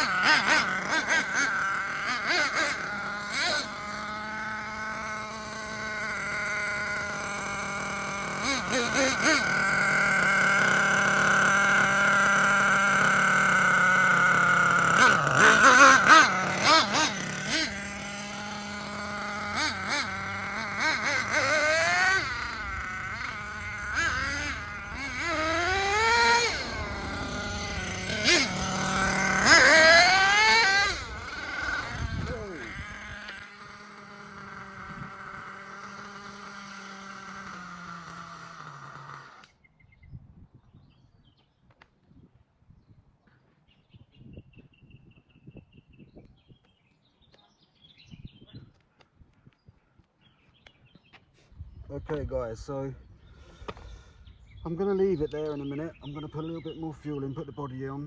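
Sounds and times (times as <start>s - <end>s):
rc truck engine revving: 0.0s - 39.7s.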